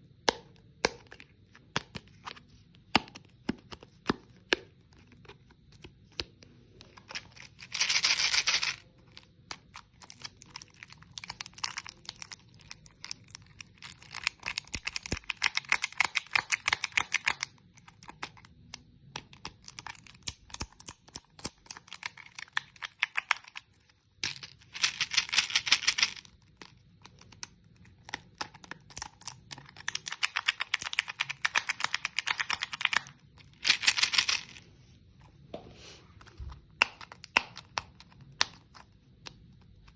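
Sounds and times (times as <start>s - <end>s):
hard candy crunching: 7.4s - 34.6s.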